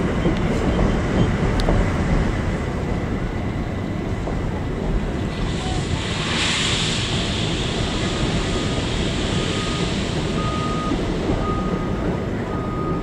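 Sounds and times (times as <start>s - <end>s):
train rumbling past: 0.0s - 13.0s
high hiss: 5.3s - 10.4s.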